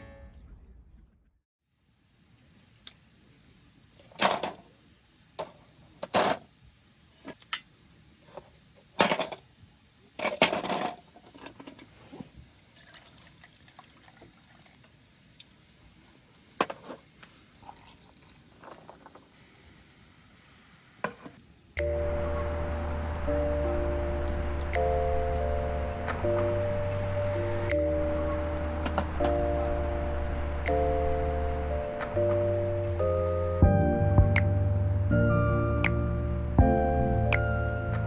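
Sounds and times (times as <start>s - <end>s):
background music: 21.8s - 38.0s.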